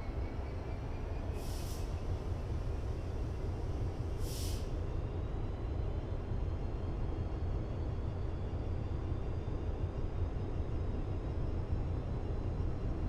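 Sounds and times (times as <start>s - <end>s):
train rumbling at speed: 0.0s - 13.0s
brief hiss: 4.2s - 4.7s.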